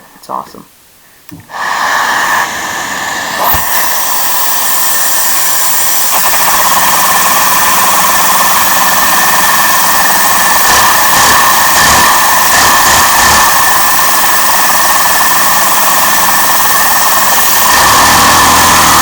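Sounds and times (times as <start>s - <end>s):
vacuum cleaner running: 1.4s - 19.0s
sharp click: 3.4s - 3.9s.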